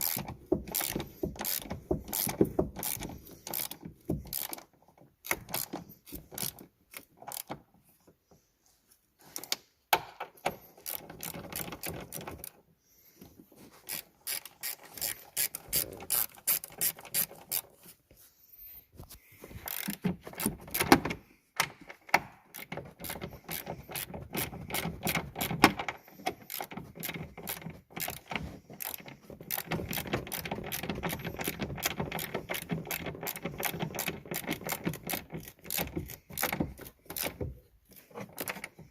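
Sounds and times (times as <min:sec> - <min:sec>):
ratchet wrench clicking: 0:00.0 - 0:04.6, 0:05.2 - 0:07.5, 0:10.8 - 0:12.3, 0:13.9 - 0:17.6, 0:19.7 - 0:20.8, 0:22.5 - 0:25.7, 0:26.4 - 0:37.4.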